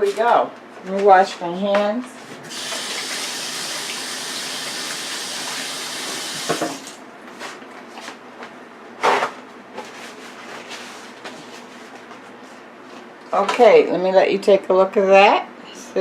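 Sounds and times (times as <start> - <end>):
tap running: 2.4 - 7.0.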